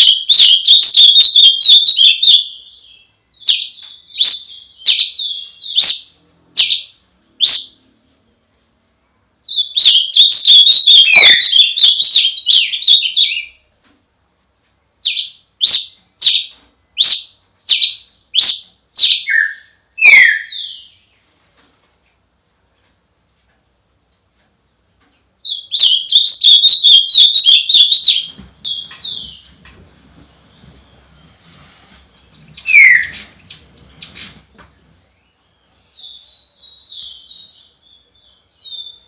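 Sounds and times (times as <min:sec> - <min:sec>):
songbird twittering warbles and chirps: 0:00.0 - 0:08.5, 0:09.2 - 0:13.6, 0:24.4 - 0:29.6, 0:30.5 - 0:39.0.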